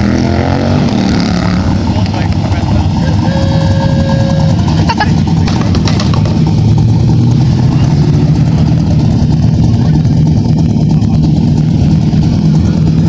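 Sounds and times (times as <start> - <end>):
vehicle engine rumbling: 0.0 - 13.0
thin steady tone: 2.9 - 4.7.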